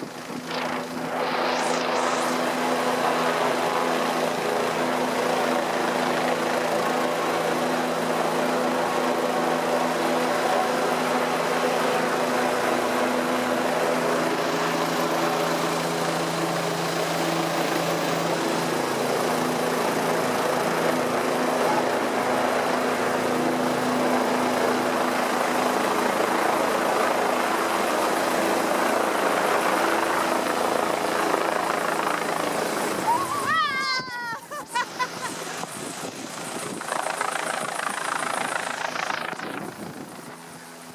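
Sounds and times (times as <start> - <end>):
steady rushing noise: 0.0 - 5.1, 34.8 - 40.4
helicopter engine and rotor hum: 0.0 - 40.9.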